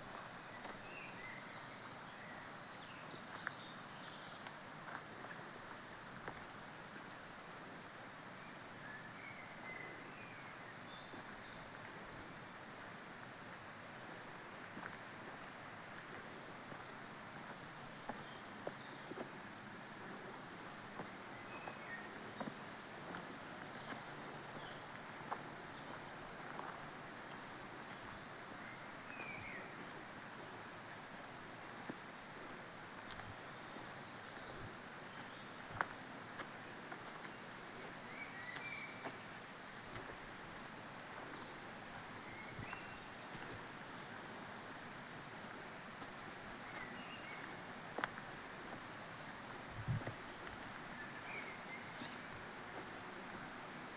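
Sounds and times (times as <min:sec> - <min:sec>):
open air hiss: 0:00.0 - 0:53.9
bird chirp: 0:38.0 - 0:44.9, 0:48.6 - 0:53.5.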